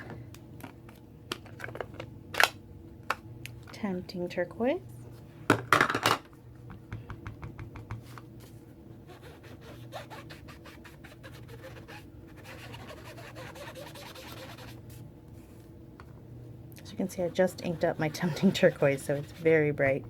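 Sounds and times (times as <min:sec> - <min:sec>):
sponge tapping on ink pad: 0:06.7 - 0:08.0
sponge scraping on card: 0:09.1 - 0:14.8, 0:17.0 - 0:19.7.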